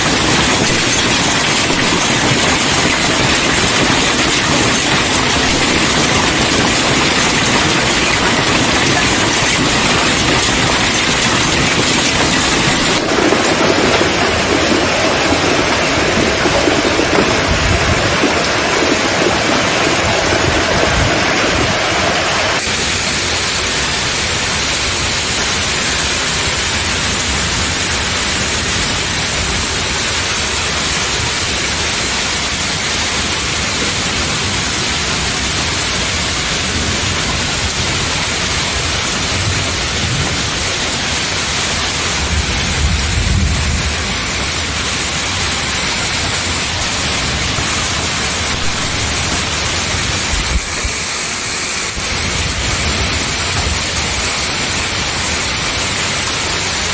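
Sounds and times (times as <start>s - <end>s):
hail and rain pouring down: 0.0s - 56.9s.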